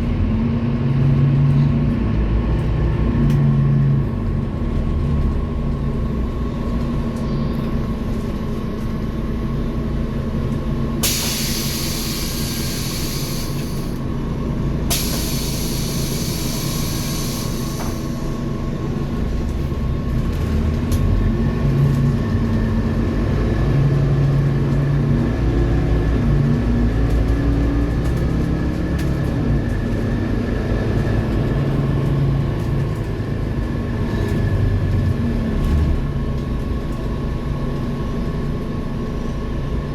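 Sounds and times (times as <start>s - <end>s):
bus engine drone: 0.0s - 39.9s
air brake hisses: 11.0s - 14.0s, 14.9s - 18.4s.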